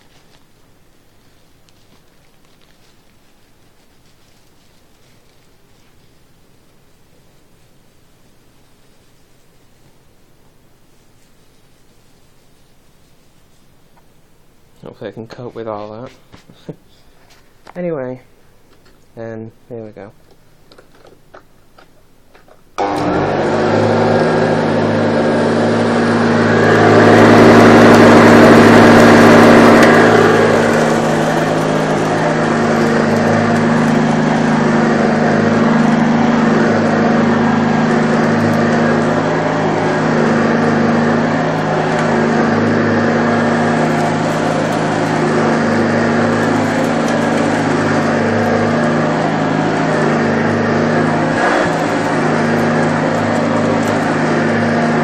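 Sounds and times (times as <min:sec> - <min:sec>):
upright vacuum cleaner humming: 0:22.8 - 0:55.0.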